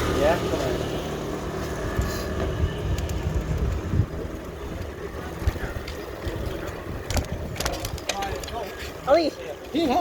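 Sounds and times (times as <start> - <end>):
wind buffeting microphone: 1.8 - 8.6
sharp clicks or rattles: 5.4 - 8.6.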